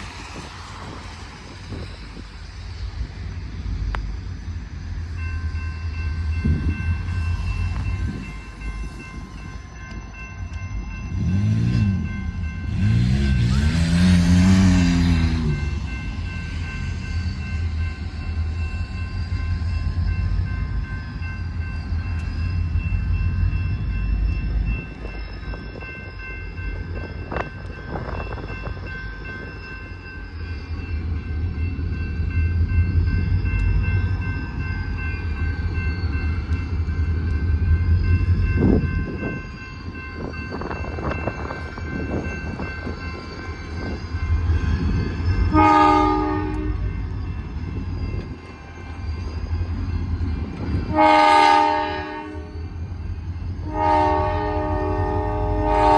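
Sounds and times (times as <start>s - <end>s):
locomotive horn blast: 45.5s - 46.8s, 50.9s - 52.5s, 53.6s - 55.9s.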